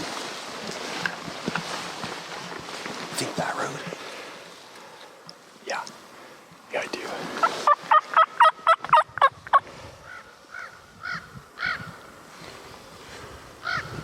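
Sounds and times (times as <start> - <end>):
turkey gobbling: 7.4 - 9.6.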